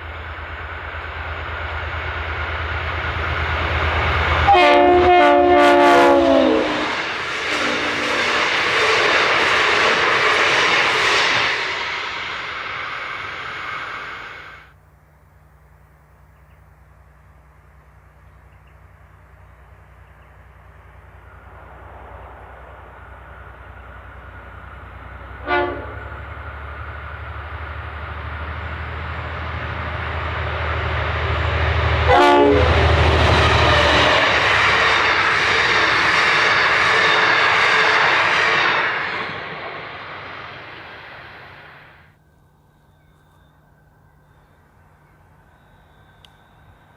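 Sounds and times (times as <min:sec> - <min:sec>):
train passing loudly: 0:00.0 - 0:14.8, 0:16.9 - 0:46.9
locomotive engine drone: 0:00.0 - 0:46.9
train horn blasts: 0:04.3 - 0:08.4, 0:25.3 - 0:26.3, 0:32.0 - 0:34.4.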